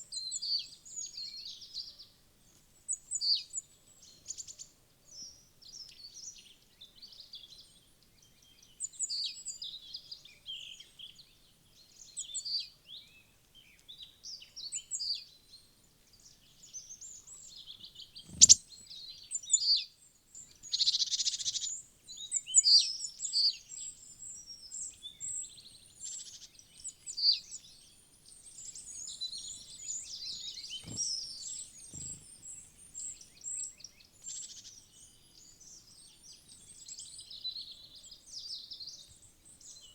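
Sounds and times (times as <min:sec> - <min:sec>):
wild birds chirping: 0:17.0 - 0:19.4, 0:20.4 - 0:39.0.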